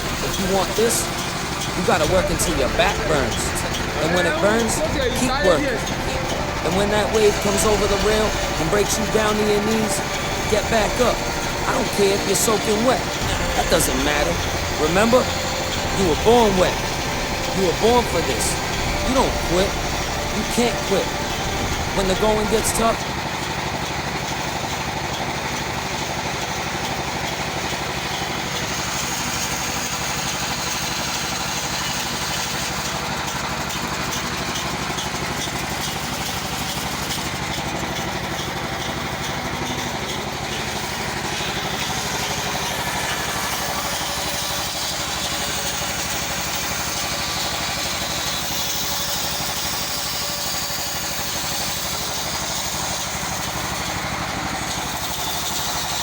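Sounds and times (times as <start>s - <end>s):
bandsaw running: 0.0s - 56.0s.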